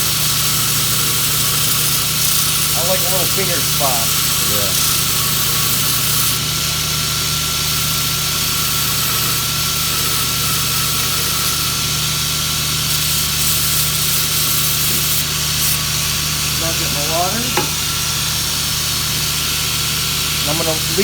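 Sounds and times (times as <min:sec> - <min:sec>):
belt grinder grinding steel: 0:00.0 - 0:21.0.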